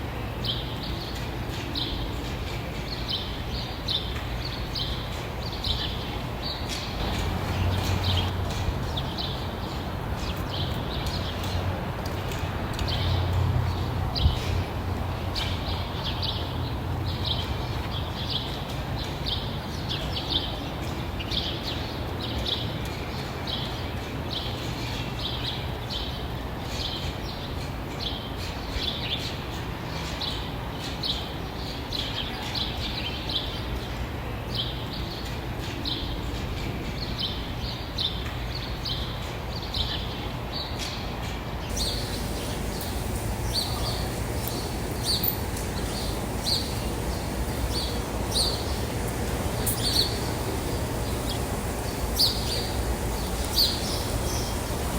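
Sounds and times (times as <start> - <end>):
bird chirping: 41.7 - 54.9
steady low rumble: 41.7 - 54.9.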